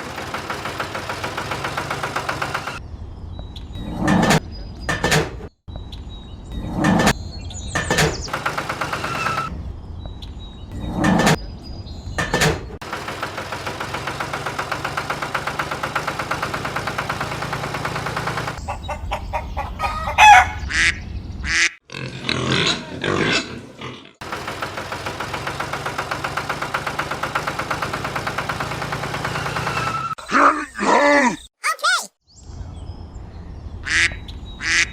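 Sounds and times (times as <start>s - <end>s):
small engine running: 0.0s - 2.8s, 8.3s - 9.5s, 12.8s - 18.6s, 24.2s - 30.2s.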